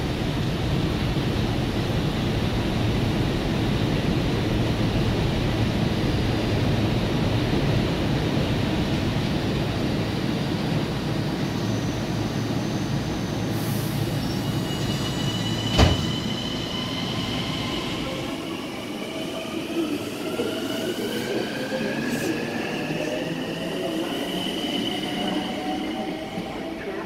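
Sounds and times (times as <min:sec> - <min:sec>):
electric train humming and rumbling: 0:00.0 - 0:27.0
train rising whine: 0:07.6 - 0:27.0.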